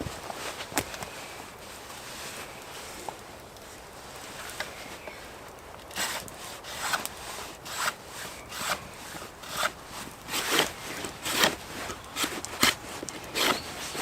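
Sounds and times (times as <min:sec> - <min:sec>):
hand saw cutting wood: 0:05.9 - 0:14.0.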